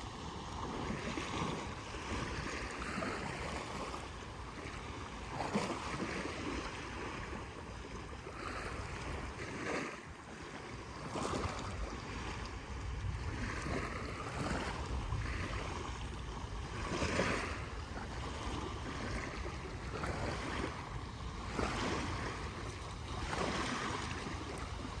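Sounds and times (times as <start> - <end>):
small waves washing onto sand: 0.0 - 25.0
wind buffeting microphone: 10.9 - 25.0.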